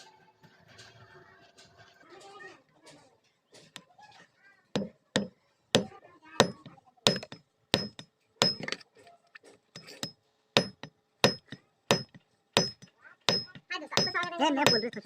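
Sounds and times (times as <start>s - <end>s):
hammer striking iron on anvil: 4.8s - 8.8s, 9.8s - 15.0s.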